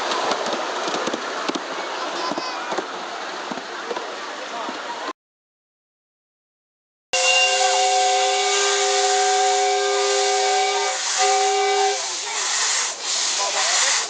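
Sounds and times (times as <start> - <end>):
steam locomotive whistle: 7.2 - 12.9
loud hiss of steam: 7.2 - 14.0.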